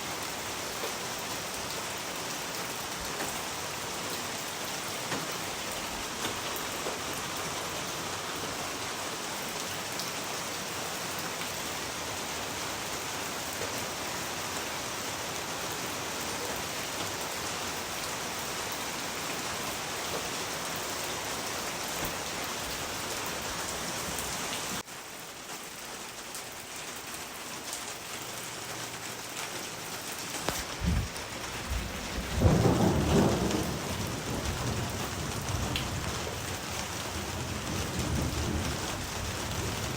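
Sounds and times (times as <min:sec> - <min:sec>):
steady rain: 0:00.0 - 0:39.9
thunder rumbling: 0:30.5 - 0:39.9.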